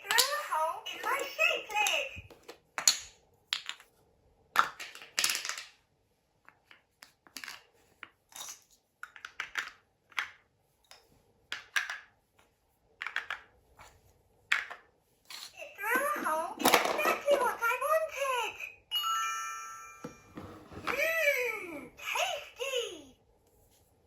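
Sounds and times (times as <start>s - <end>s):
plastic toy pieces clicking: 9.0s - 10.4s.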